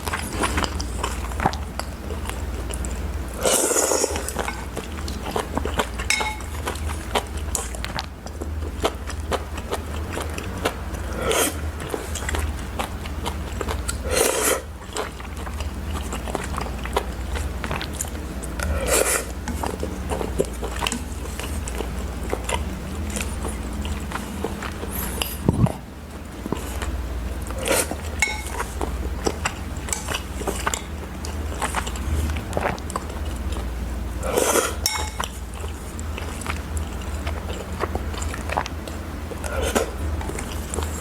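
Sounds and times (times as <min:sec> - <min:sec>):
chewing and biting: 0:00.0 - 0:41.0
steady low hum: 0:00.0 - 0:41.0
utensils clinking on bowl: 0:06.0 - 0:06.8, 0:28.1 - 0:28.7, 0:29.9 - 0:31.0, 0:34.8 - 0:35.4.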